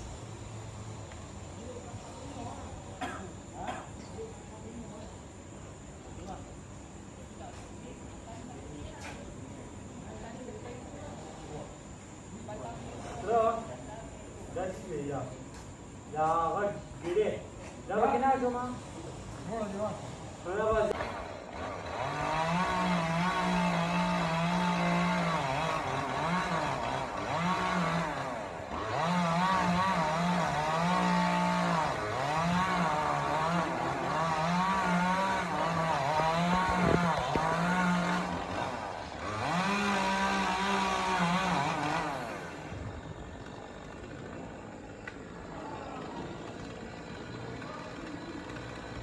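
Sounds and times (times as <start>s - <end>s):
chainsaw revving: 18.1s - 49.0s.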